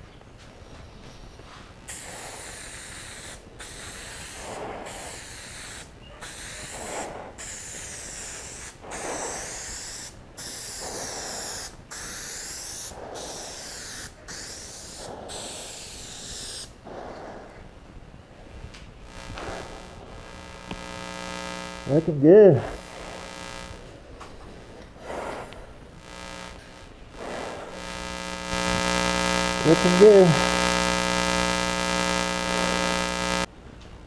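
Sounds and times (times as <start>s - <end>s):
aerosol spray can hissing: 1.9s - 16.7s, 26.6s - 28.7s.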